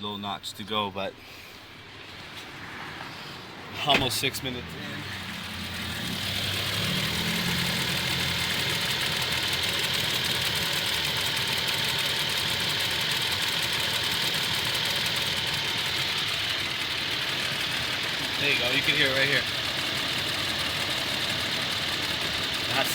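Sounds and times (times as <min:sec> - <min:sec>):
truck engine idling with ticking: 0:04.9 - 0:22.9.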